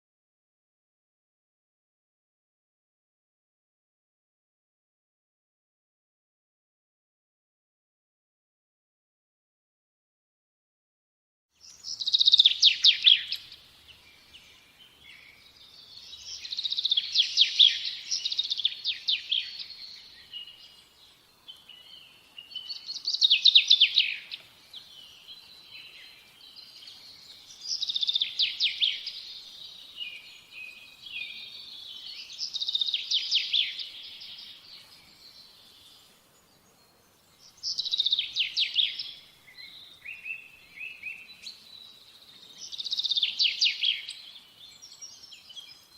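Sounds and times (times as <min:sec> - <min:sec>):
songbird trilling: 0:11.7 - 0:13.6, 0:15.1 - 0:20.8, 0:21.6 - 0:34.5, 0:37.5 - 0:41.6.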